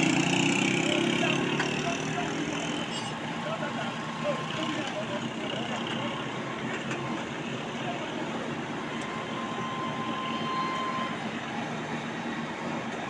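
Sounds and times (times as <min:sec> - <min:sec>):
highway traffic: 0:00.0 - 0:13.0.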